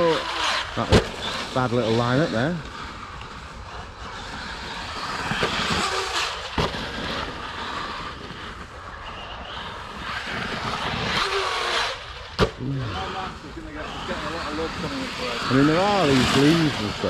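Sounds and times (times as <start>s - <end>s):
rc truck motor and tyres hissing: 0.0s - 17.0s.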